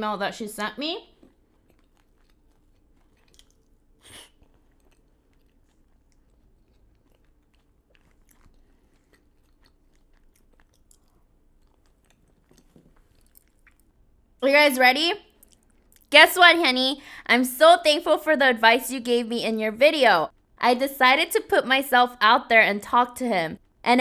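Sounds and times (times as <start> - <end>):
chewing with crunches: 1.0 - 14.4, 15.2 - 16.1.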